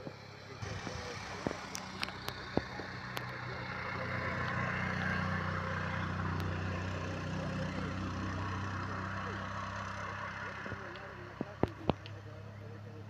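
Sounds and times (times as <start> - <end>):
vehicle engine idling: 0.0 - 13.0
sharp clicks: 1.3 - 3.5, 10.6 - 12.2.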